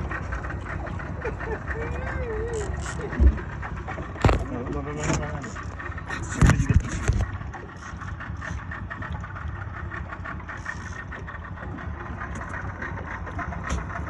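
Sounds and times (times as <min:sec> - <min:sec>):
boat engine idling: 0:00.0 - 0:14.0.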